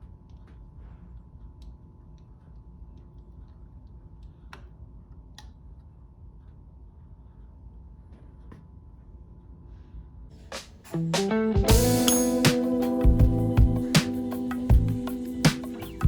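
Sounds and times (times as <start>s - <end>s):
low steady hum: 11.7s - 16.0s.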